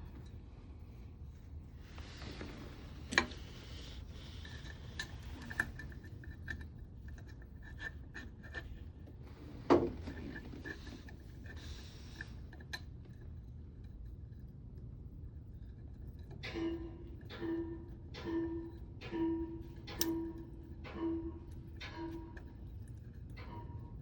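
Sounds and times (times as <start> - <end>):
rubbing and scraping of parts: 0.0 - 14.9
small metal clicks: 18.2 - 21.0.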